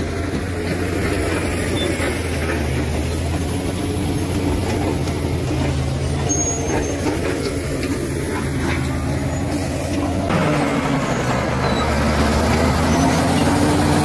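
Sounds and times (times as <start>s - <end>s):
bulldozer engine running: 0.0s - 14.0s.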